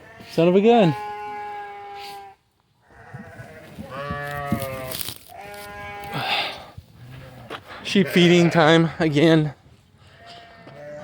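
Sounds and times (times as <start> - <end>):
sheep bleating: 0.0 - 9.0, 10.0 - 11.0.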